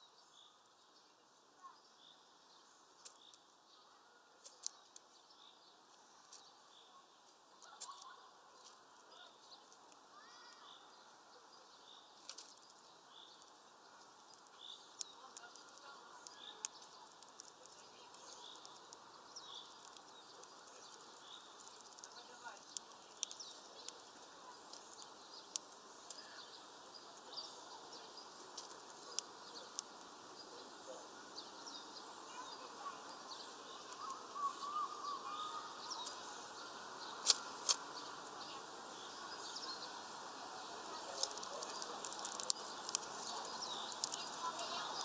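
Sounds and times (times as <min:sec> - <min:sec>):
faint small bird chirps: 0:00.0 - 0:45.0
bird cracking seeds clicks: 0:03.0 - 0:03.4, 0:04.4 - 0:05.1, 0:12.2 - 0:12.8, 0:14.3 - 0:26.2, 0:28.5 - 0:30.1, 0:37.2 - 0:37.9, 0:41.1 - 0:45.0.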